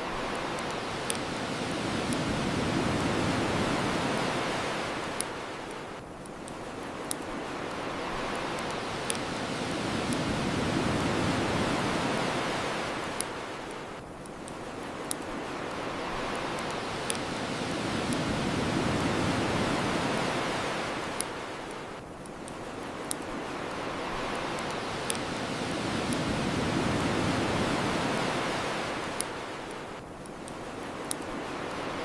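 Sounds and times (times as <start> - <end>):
ocean waves washing ashore: 0.0 - 32.0
wood fire crackling: 0.1 - 32.0.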